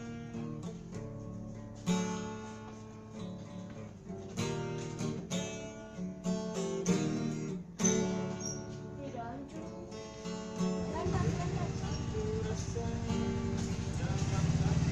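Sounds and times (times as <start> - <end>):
plucked string instrument: 0.0 - 14.9.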